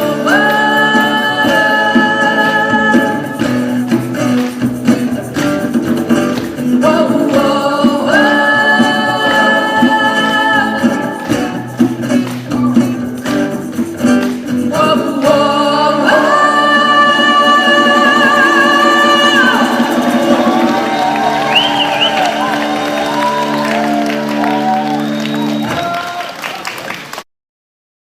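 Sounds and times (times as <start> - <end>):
live band playing: 0.0 - 27.2
lead singer holding long notes: 14.7 - 26.3.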